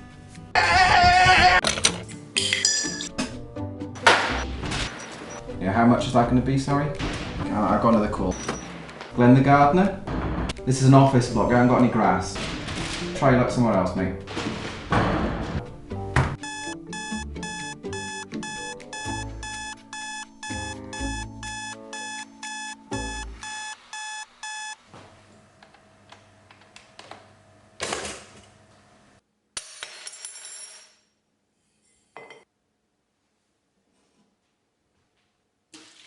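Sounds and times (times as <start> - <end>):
rapid electronic beeping: 16.4 - 24.8.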